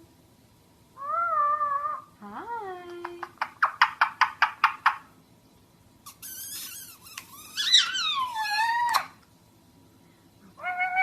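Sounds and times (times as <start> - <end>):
pet animal squeaky cries: 6.1 - 9.2.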